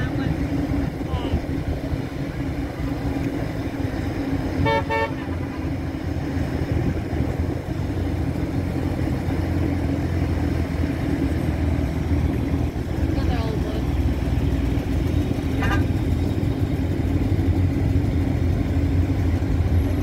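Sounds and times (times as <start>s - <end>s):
car engines rumbling past: 0.0s - 20.0s
car horn toot: 4.6s - 5.6s.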